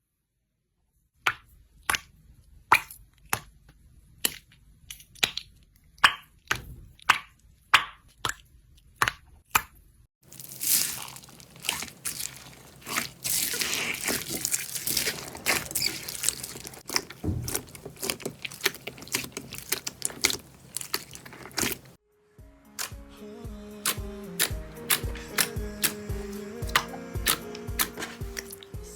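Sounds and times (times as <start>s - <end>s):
slime crackling and squishing: 10.2s - 22.0s, 24.9s - 28.9s
music with thumping beats: 22.4s - 28.9s.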